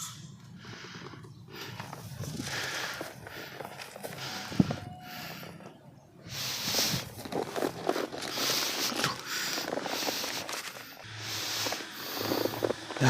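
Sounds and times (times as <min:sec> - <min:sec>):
clothing and gear rustling: 0:06.5 - 0:13.0.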